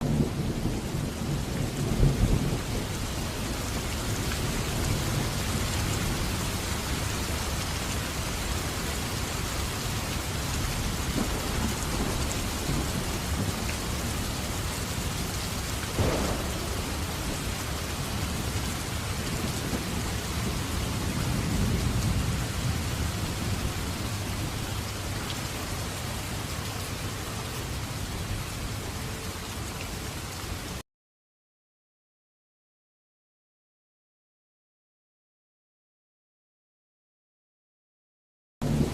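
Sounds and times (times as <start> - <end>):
thunder rumbling: 0.0 - 28.8, 38.6 - 38.9
steady rain falling: 0.0 - 30.8, 38.6 - 38.9.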